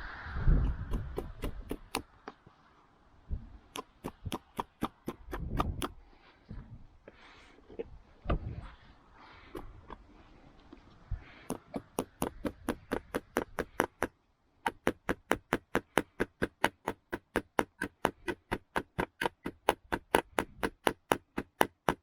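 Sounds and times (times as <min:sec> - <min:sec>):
hammer driving nail into wood: 0:00.9 - 0:02.1, 0:03.8 - 0:06.0, 0:11.4 - 0:22.0.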